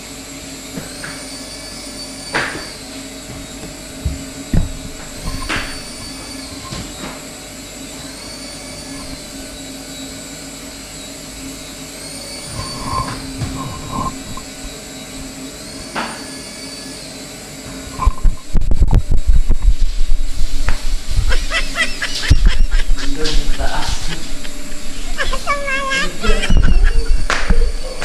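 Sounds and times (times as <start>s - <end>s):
toy helicopter rotors whirring: 0.8s - 7.2s, 7.8s - 17.2s, 21.1s - 28.0s
loud thumps: 3.9s - 6.0s.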